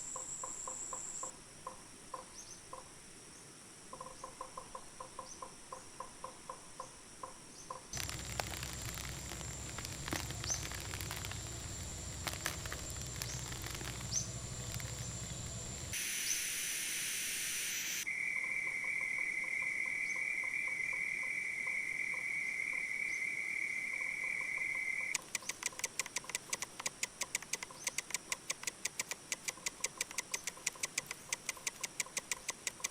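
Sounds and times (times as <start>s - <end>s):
low rumble: 8.0s - 16.0s
rapid even clicks: 8.0s - 16.0s, 25.2s - 32.9s
rhythmic pulsing animal calls: 8.0s - 16.0s
high bird chirps: 8.0s - 16.4s
loud hiss: 8.0s - 18.1s
high-pitched insect drone: 8.0s - 20.0s.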